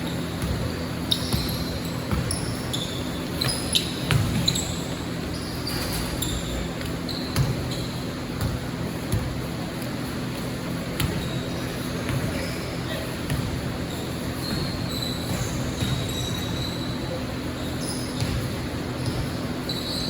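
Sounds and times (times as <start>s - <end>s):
sneakers squeaking on floor: 0.0s - 20.0s
basketball bouncing: 0.3s - 4.9s, 6.8s - 10.0s, 10.9s - 11.4s, 13.2s - 13.6s, 14.4s - 16.3s, 18.2s - 19.4s.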